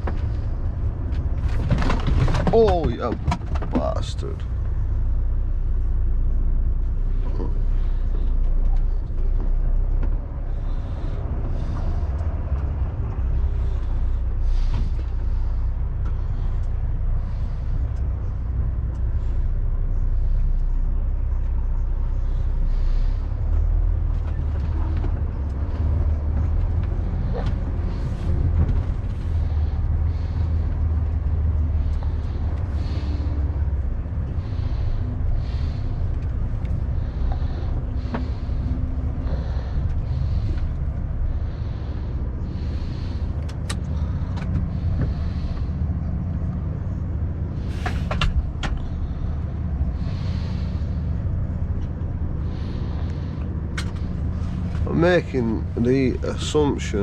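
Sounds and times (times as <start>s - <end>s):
diesel lorry engine running: 0.0s - 57.0s.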